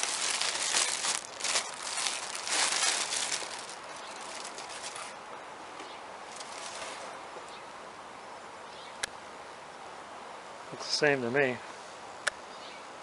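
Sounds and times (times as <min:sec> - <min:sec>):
packaging crinkling: 0:00.0 - 0:05.2, 0:06.3 - 0:07.1
faint steady hiss: 0:00.0 - 0:13.0.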